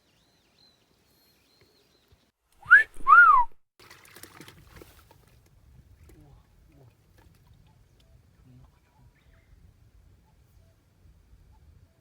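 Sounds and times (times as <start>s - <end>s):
person wolf whistling: 2.6s - 3.6s.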